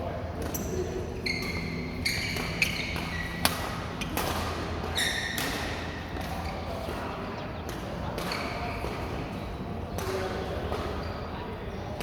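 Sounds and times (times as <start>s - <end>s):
shoes squeaking on court floor: 0.4s - 11.3s
racket hitting shuttlecock: 1.4s - 7.0s.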